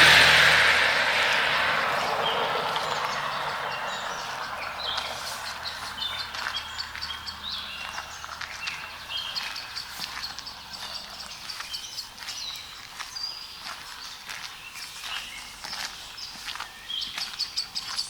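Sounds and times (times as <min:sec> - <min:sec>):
passing engine rushing: 0:00.0 - 0:11.6
small birds chirping: 0:00.9 - 0:18.0.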